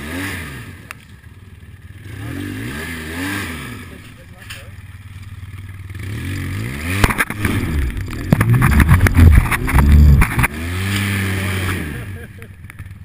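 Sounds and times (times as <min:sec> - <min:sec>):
motorcycle engine revving: 0:00.0 - 0:13.0
sharp knocks and clatters: 0:06.9 - 0:11.0.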